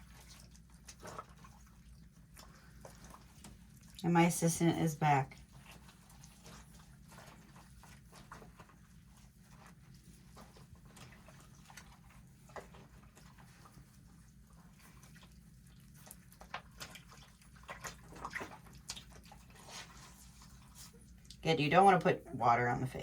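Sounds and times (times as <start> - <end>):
water splashing and dripping: 14.6 - 22.6.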